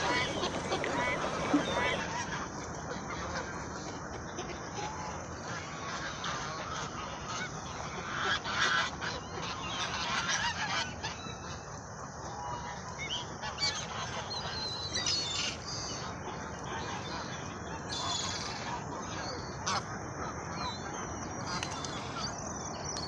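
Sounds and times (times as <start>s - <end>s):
flock of birds calling: 0.0s - 2.5s, 12.4s - 23.0s.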